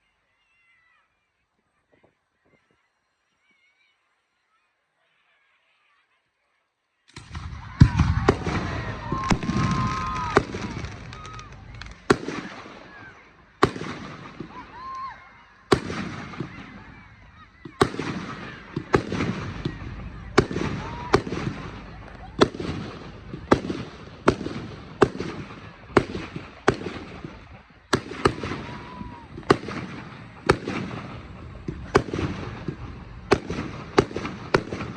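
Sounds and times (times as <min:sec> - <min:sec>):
whistling fireworks: 0:00.4 - 0:34.9
firework bangs: 0:07.1 - 0:34.9
firework crackling: 0:07.1 - 0:34.9.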